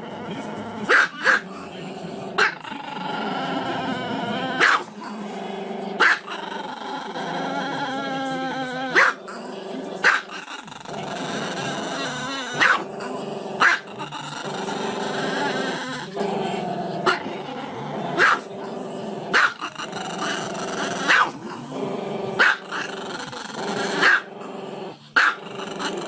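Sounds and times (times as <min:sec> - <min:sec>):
dog barking: 0:00.9 - 0:01.4, 0:02.4 - 0:02.6, 0:04.6 - 0:04.9, 0:06.0 - 0:06.4, 0:09.0 - 0:09.2, 0:10.0 - 0:10.4, 0:12.6 - 0:12.9, 0:13.6 - 0:13.9, 0:18.2 - 0:18.5, 0:19.3 - 0:19.7, 0:21.0 - 0:21.4, 0:22.4 - 0:22.8, 0:24.0 - 0:24.3, 0:25.2 - 0:25.4.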